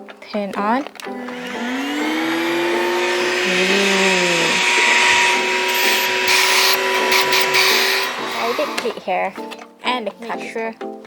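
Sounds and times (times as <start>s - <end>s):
cordless vacuum cleaner whining: 0.9s - 9.5s.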